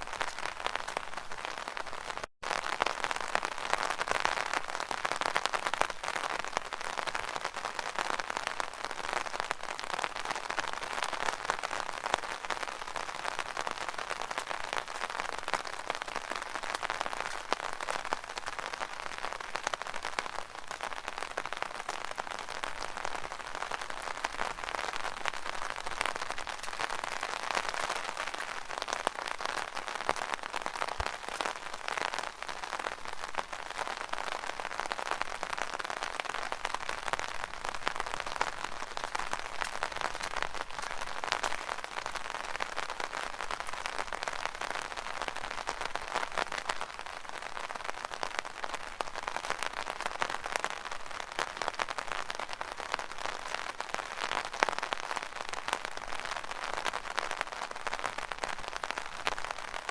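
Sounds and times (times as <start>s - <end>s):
rain pattering on umbrella: 0.0s - 59.9s.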